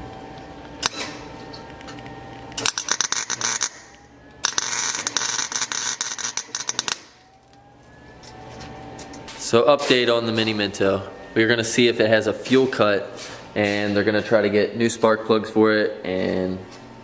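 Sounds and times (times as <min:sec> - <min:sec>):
welding arc crackling and hissing: 0:04.4 - 0:07.4.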